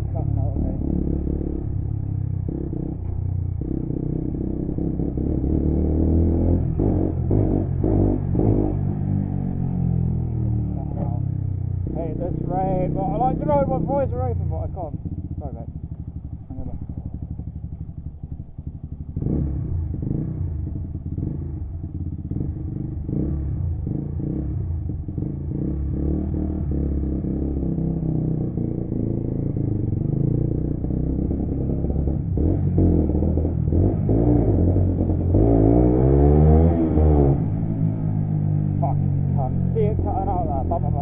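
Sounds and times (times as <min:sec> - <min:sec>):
motorcycle engine: 0:00.0 - 0:41.0.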